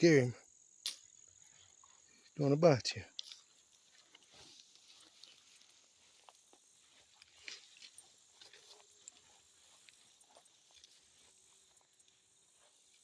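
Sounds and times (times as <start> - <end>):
high insect drone: 0.0 - 13.0
footsteps through dry leaves: 3.3 - 11.3.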